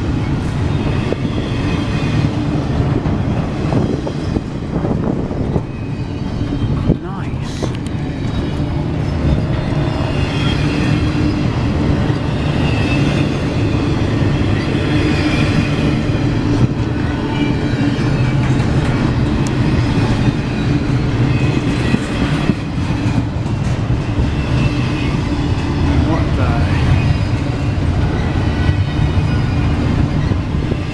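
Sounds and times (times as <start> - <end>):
steel wheels rumbling on rail: 0.0 - 30.9.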